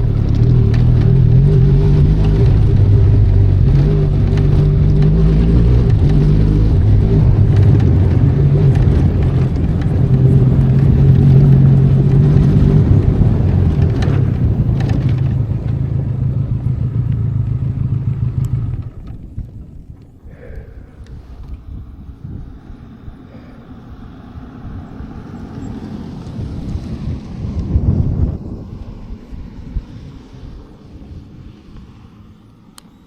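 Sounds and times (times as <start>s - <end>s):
motorcycle engine running: 0.0s - 23.2s.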